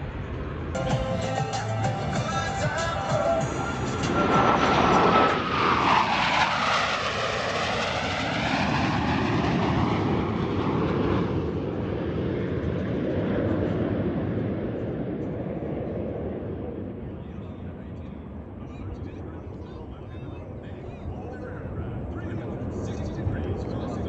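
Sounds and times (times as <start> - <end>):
jets making a low pass: 0.8 - 8.7.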